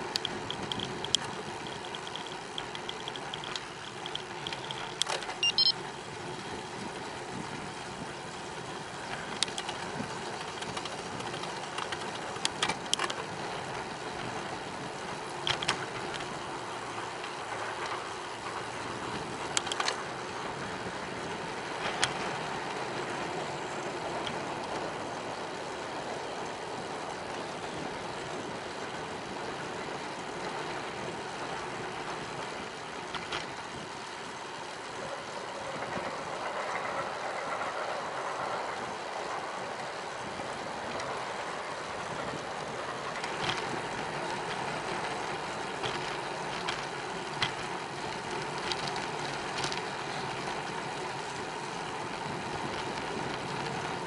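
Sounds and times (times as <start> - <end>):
bicycle tyres on pavement: 0.0 - 54.0
wind noise: 6.2 - 54.0.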